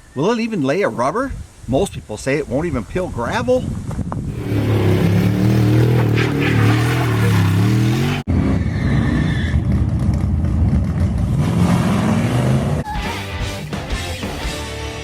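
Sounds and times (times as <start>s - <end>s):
truck engine revving: 4.3s - 13.8s.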